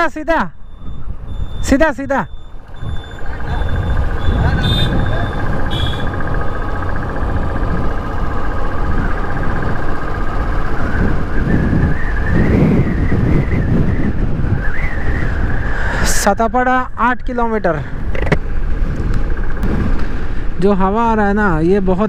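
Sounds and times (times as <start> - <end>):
motorcycle engine drone: 0.5 - 22.0
wind buffeting microphone: 0.6 - 1.7, 2.3 - 16.6, 17.9 - 20.6.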